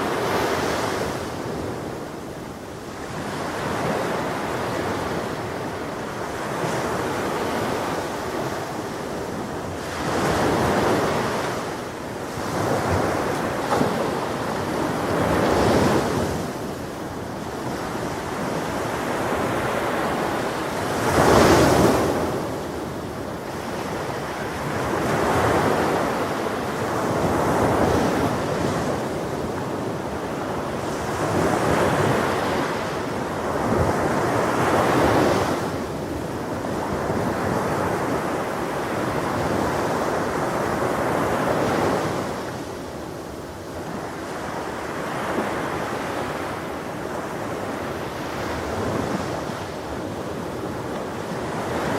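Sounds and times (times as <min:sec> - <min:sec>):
ocean waves breaking on shore: 0:00.0 - 0:51.9
wind noise: 0:00.0 - 0:51.9.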